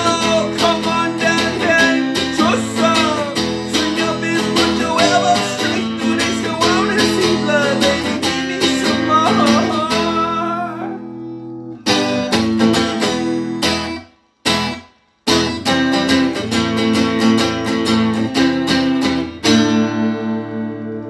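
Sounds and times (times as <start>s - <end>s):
person singing: 0.0s - 11.4s
electric guitar strumming chords: 0.0s - 21.0s.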